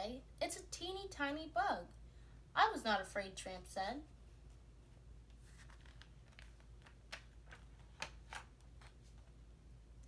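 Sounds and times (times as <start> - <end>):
book pages rustling: 5.3 - 9.4.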